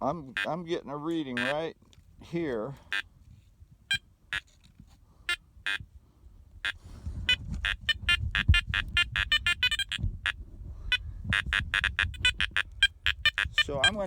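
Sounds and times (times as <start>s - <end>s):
metal detector beeping: 1.3s - 1.6s, 3.9s - 4.5s, 6.6s - 14.0s.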